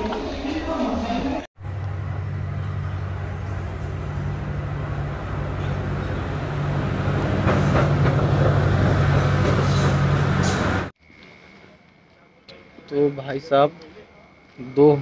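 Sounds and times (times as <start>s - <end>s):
diesel train engine hum: 1.6s - 11.0s.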